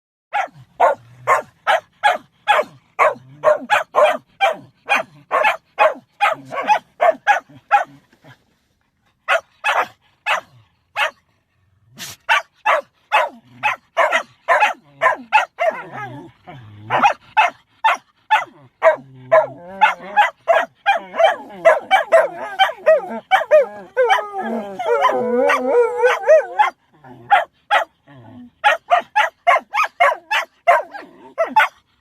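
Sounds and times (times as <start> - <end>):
dog barking rapidly: 0.3 - 7.9, 9.3 - 11.2, 12.0 - 16.1, 16.9 - 27.9, 28.6 - 31.8.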